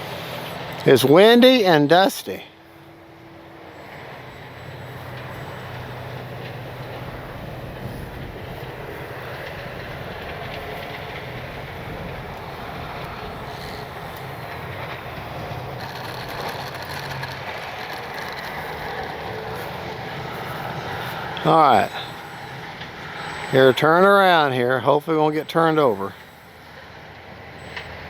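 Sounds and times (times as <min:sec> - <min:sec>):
wind buffeting microphone: 0:05.0 - 0:24.0.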